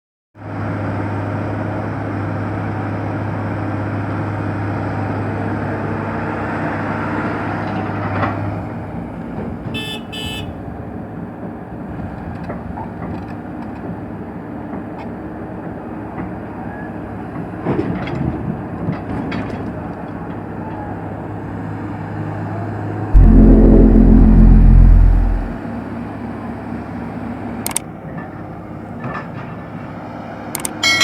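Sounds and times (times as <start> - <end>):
diesel engine running: 23.2 - 25.6
short horn toots: 23.2 - 25.6.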